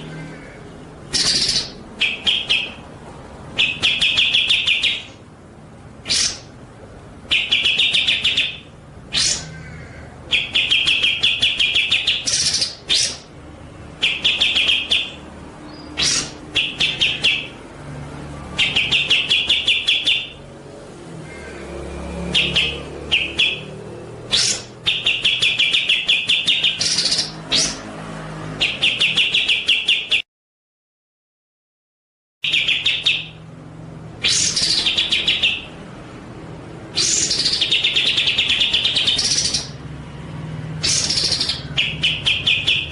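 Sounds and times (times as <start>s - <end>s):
songbird trilling: 0.0s - 2.9s, 3.5s - 5.2s, 6.0s - 6.6s, 7.3s - 13.3s, 14.0s - 17.7s, 18.5s - 20.5s, 22.2s - 27.8s, 28.6s - 30.2s, 32.4s - 33.4s, 34.2s - 35.8s, 36.8s - 39.8s, 40.8s - 42.9s.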